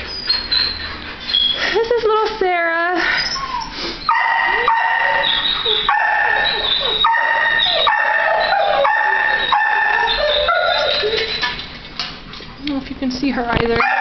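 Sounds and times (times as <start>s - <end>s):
dogs barking and howling: 3.3s - 12.0s, 13.8s - 14.0s.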